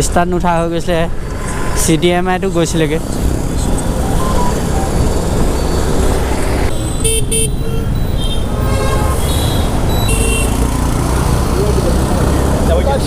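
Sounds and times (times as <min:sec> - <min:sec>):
engine wind and traffic rumble: 0:00.0 - 0:13.0
vehicle horn toots: 0:06.7 - 0:10.6.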